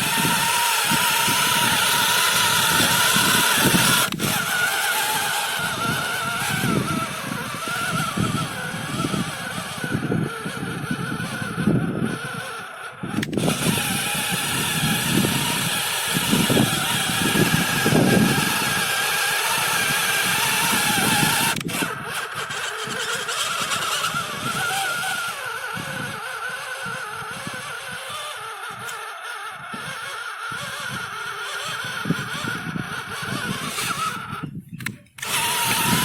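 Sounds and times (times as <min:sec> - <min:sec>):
tractor diesel engine running: 0:00.0 - 0:36.0.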